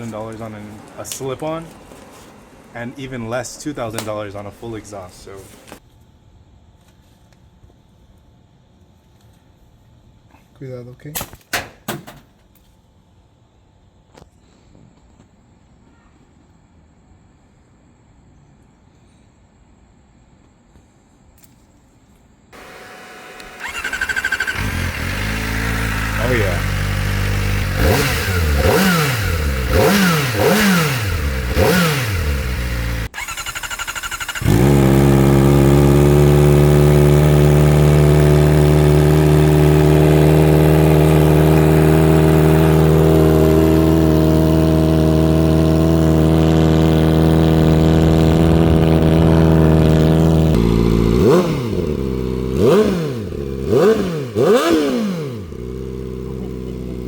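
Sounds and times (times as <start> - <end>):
motorcycle engine revving and idling: 0.0 - 5.8, 22.6 - 57.0.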